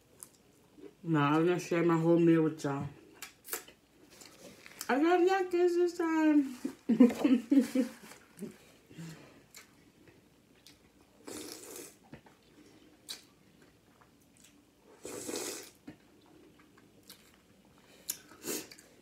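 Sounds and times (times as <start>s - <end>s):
person chewing and biting food: 10.5s - 14.6s.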